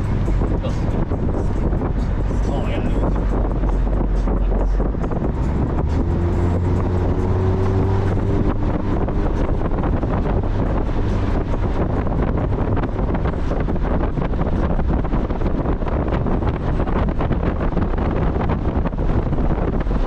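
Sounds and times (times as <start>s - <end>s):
car engine driving: 0.0s - 20.0s
wind buffeting microphone: 0.0s - 20.0s.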